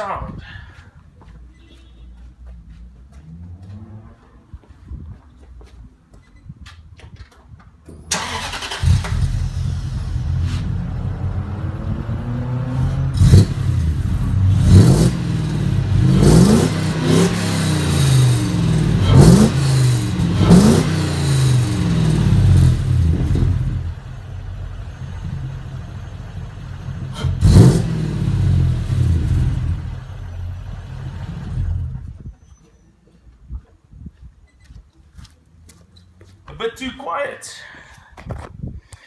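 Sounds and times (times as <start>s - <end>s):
car engine revving and idling: 2.7s - 4.6s, 8.1s - 32.2s.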